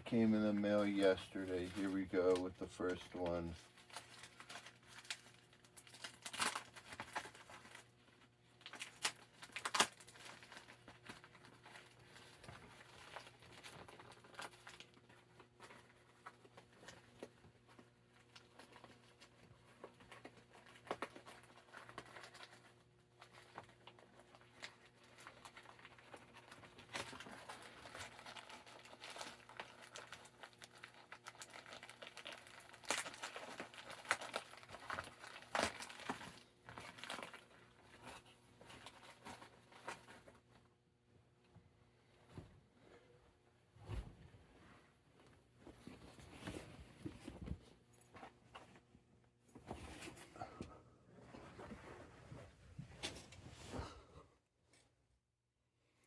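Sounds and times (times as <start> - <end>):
packaging crinkling and tearing: 0.1 - 40.5.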